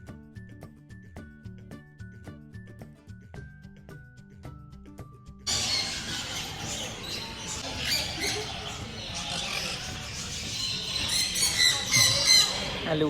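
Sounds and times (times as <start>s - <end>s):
bird squawks: 5.5s - 13.0s
parrots chattering: 5.5s - 13.0s.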